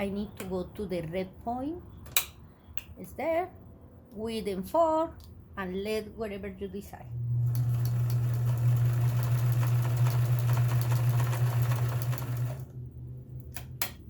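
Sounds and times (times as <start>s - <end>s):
sewing machine running: 7.4s - 12.7s.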